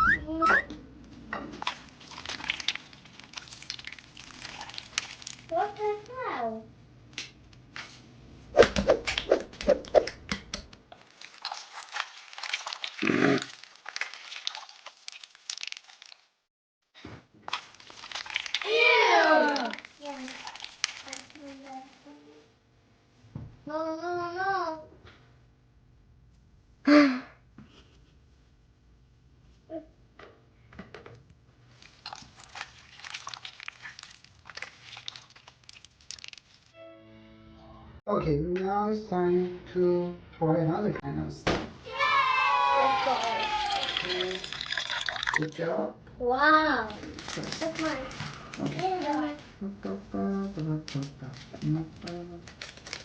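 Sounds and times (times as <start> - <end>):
slime crackling: 1.6 - 6.2, 11.0 - 16.3, 17.5 - 22.2, 31.8 - 36.7, 46.8 - 49.5.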